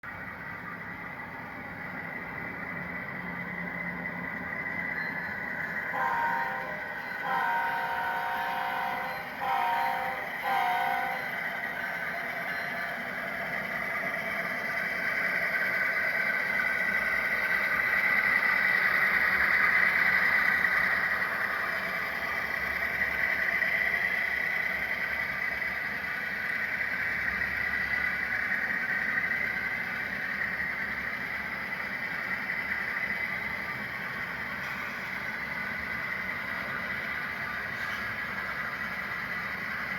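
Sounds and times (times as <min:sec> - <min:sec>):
wheels rumbling on rail: 0:00.0 - 0:39.9
high ringing tone: 0:04.7 - 0:13.3
train horn blasts: 0:05.8 - 0:11.5.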